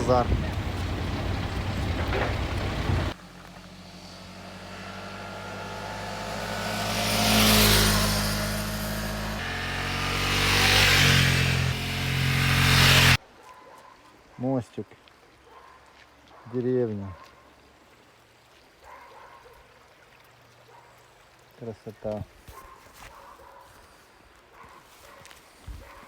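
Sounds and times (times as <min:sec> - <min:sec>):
engine note: 0:00.0 - 0:13.2
vehicles passing: 0:00.0 - 0:13.2.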